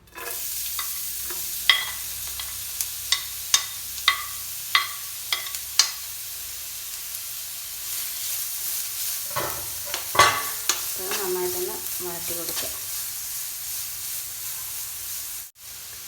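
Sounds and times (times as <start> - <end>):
onion sizzling in hot oil: 0.0 - 16.0.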